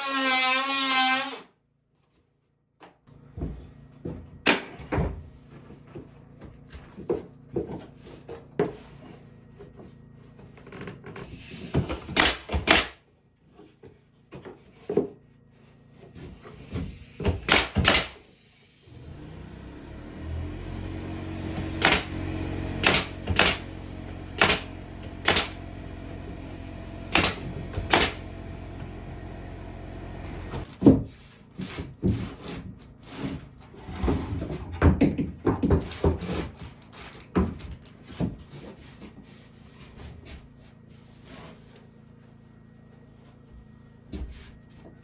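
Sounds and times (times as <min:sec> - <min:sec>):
low motor hum: 0:18.7 - 0:30.8
clatter of wood and tools: 0:30.4 - 0:40.5.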